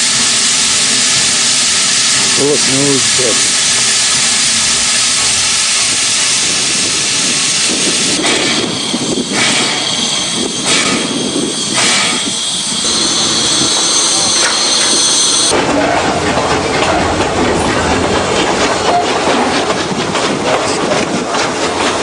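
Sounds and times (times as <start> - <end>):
steam bursts: 0.0 - 15.5
steam locomotive hissing: 0.0 - 15.6.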